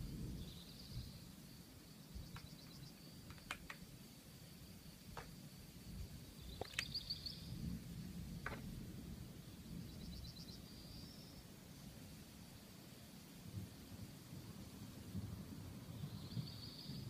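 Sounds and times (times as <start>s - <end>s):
small birds chirping: 0.1s - 4.1s, 6.0s - 7.7s, 9.4s - 11.9s, 15.8s - 17.0s.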